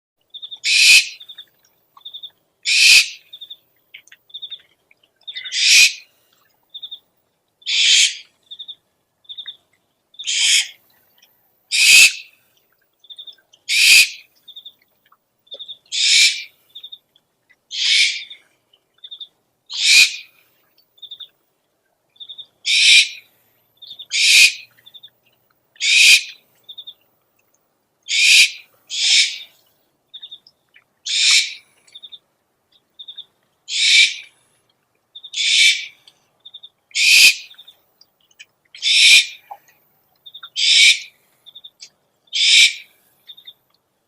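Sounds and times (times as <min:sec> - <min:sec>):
owl chittering trills: 0:00.4 - 0:01.4, 0:02.0 - 0:04.6, 0:05.3 - 0:06.0, 0:07.7 - 0:09.6, 0:10.2 - 0:10.8, 0:11.7 - 0:12.3, 0:13.0 - 0:14.3, 0:15.6 - 0:16.5, 0:17.7 - 0:18.4, 0:19.0 - 0:20.3, 0:22.2 - 0:25.1, 0:25.8 - 0:26.9, 0:28.1 - 0:29.6, 0:31.0 - 0:32.2, 0:33.0 - 0:34.3, 0:35.2 - 0:37.7, 0:38.3 - 0:39.6, 0:40.2 - 0:43.6
owl hissing screech: 0:00.7 - 0:01.2, 0:02.7 - 0:03.2, 0:05.5 - 0:06.0, 0:07.7 - 0:08.2, 0:10.3 - 0:10.8, 0:11.7 - 0:12.2, 0:13.7 - 0:14.2, 0:16.0 - 0:16.5, 0:17.7 - 0:18.3, 0:19.8 - 0:20.2, 0:22.7 - 0:23.2, 0:24.1 - 0:24.6, 0:25.8 - 0:26.3, 0:28.1 - 0:29.5, 0:31.1 - 0:31.6, 0:33.7 - 0:34.3, 0:35.4 - 0:35.9, 0:37.0 - 0:37.5, 0:38.8 - 0:39.4, 0:40.6 - 0:41.1, 0:42.4 - 0:42.8.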